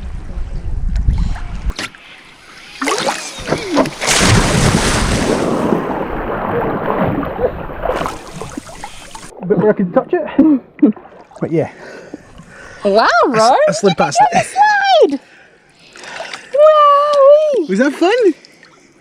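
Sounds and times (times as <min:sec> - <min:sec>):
wind buffeting microphone: 0:00.0 - 0:01.8
river water splashing: 0:01.8 - 0:09.4, 0:10.9 - 0:12.9, 0:15.8 - 0:16.6.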